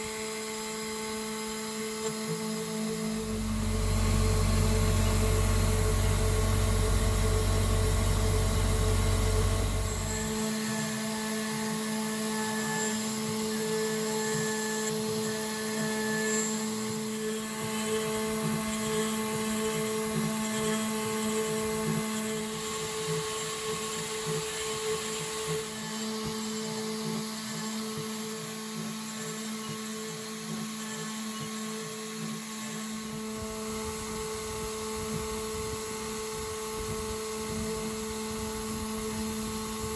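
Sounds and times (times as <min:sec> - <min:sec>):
router spindle whining: 0:00.0 - 0:39.9
deep low hum: 0:02.9 - 0:10.5.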